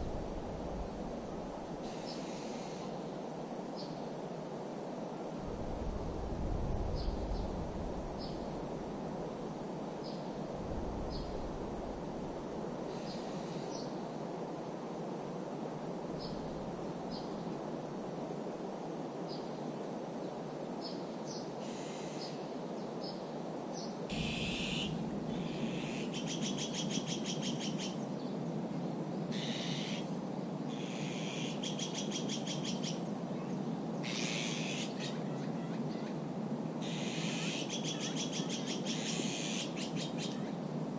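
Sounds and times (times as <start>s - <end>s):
steady outdoor hiss: 0.0s - 40.9s
small birds singing: 36.8s - 40.6s.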